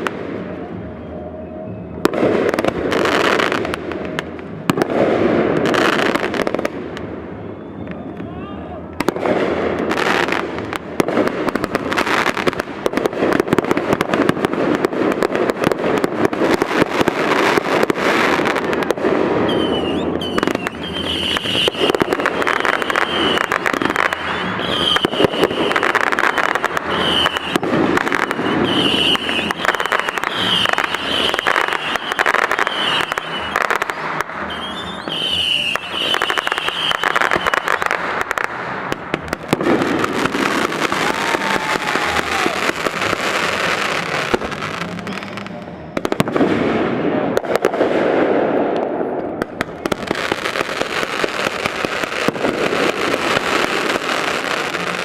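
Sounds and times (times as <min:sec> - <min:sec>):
firework whistles: 0:00.0 - 0:08.4, 0:15.7 - 0:47.1
fireworks bangs and crackling: 0:00.0 - 0:55.0.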